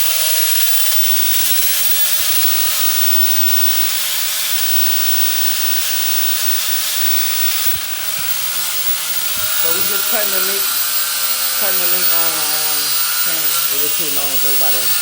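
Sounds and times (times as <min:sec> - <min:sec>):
cut-off wheel grinding steel: 0:00.0 - 0:15.0
steady whine: 0:06.3 - 0:15.0.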